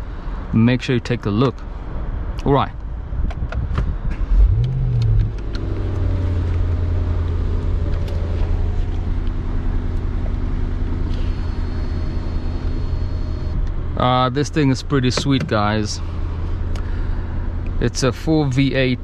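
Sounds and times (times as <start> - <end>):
car engine starting and idling: 4.2 - 19.0.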